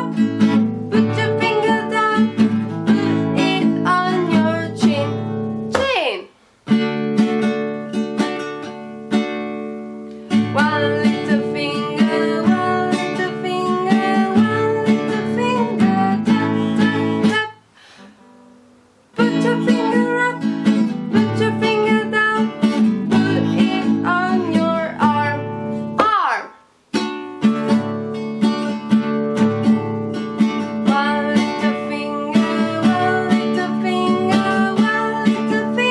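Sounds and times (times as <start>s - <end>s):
strummed acoustic guitar: 0.0s - 35.9s
person singing children's song: 0.9s - 6.3s, 10.4s - 17.6s, 19.2s - 26.6s, 30.8s - 35.9s.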